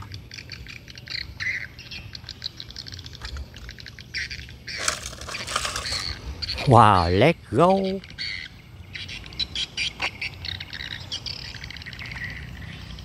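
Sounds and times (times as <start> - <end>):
small birds chirping: 0.0 - 13.0
brief rustling: 4.8 - 6.2.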